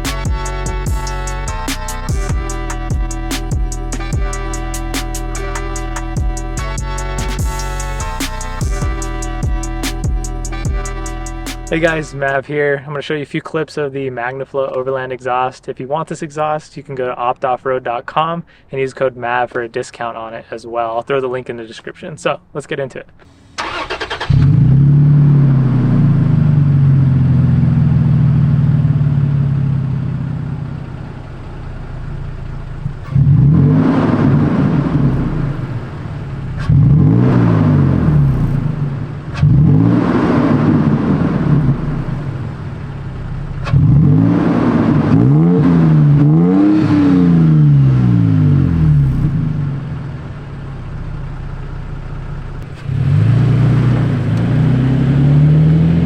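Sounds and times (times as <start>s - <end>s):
pickup truck engine revving: 0.0s - 12.3s, 23.3s - 30.2s, 32.6s - 50.3s, 52.6s - 56.0s.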